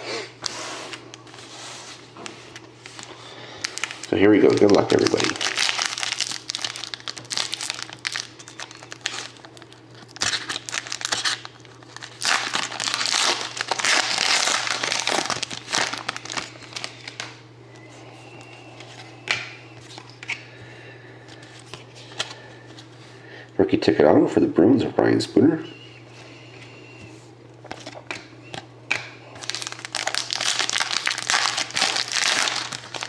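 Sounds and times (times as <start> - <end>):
plastic wrapping tearing and crinkling: 2.6 - 17.4, 29.3 - 33.0.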